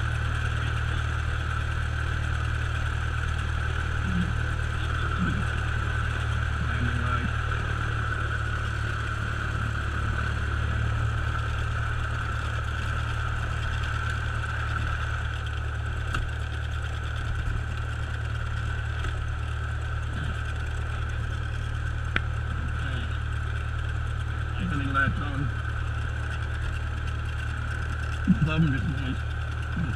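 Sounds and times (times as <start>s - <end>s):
light aircraft engine from cabin: 0.0s - 29.9s.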